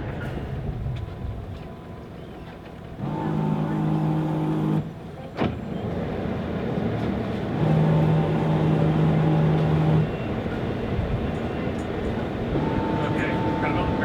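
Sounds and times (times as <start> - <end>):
motor running: 3.0 - 5.0, 5.8 - 10.5
steady hum: 12.1 - 14.0.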